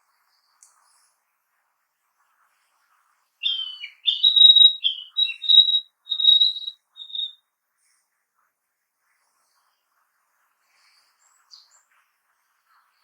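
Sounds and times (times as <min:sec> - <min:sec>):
bird singing whistled notes: 0:03.4 - 0:07.4.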